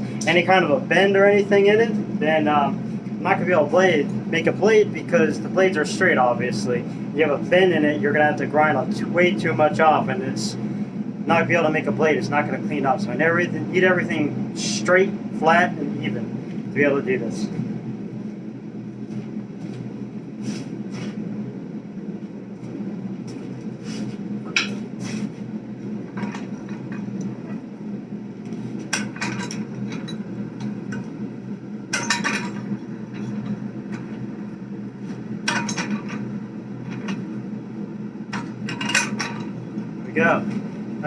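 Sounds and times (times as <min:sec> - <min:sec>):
steady low drone: 0:00.0 - 0:41.0
metallic clanks of steel on steel: 0:31.9 - 0:32.6.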